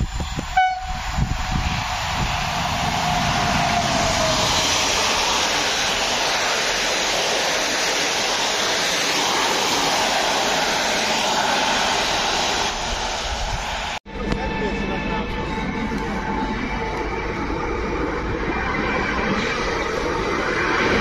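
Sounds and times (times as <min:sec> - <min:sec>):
train coaches rushing past: 0:00.0 - 0:21.0
train horn: 0:00.6 - 0:01.2.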